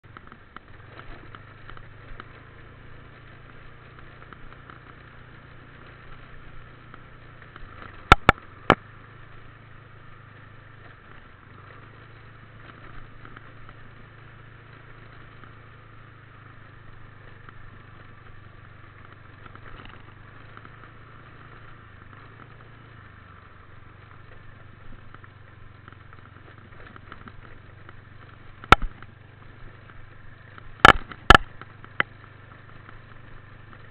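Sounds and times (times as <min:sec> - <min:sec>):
motorbike engine running: 0:00.0 - 0:33.9
sharp loud clicks: 0:07.8 - 0:08.8, 0:30.8 - 0:32.1.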